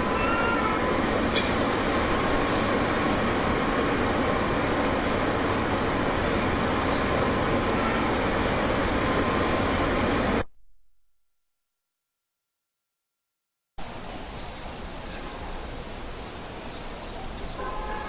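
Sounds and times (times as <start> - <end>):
steady rushing noise: 0.9 - 10.4.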